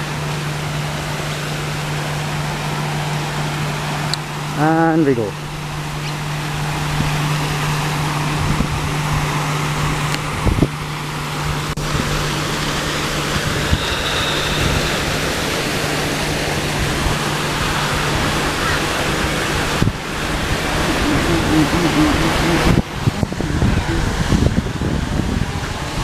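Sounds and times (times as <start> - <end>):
low steady hum: 0.0 - 26.0
wind buffeting microphone: 5.3 - 26.0.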